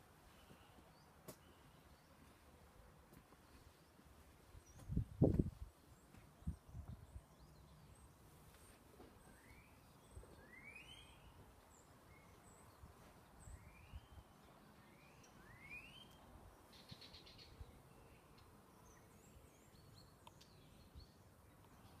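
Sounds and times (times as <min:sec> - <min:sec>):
rising whistled bird call: 0:09.3 - 0:11.4, 0:14.9 - 0:16.2.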